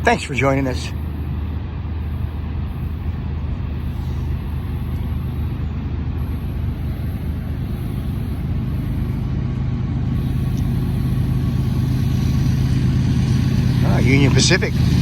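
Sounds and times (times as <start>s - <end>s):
diesel locomotive engine drone: 0.0s - 15.0s.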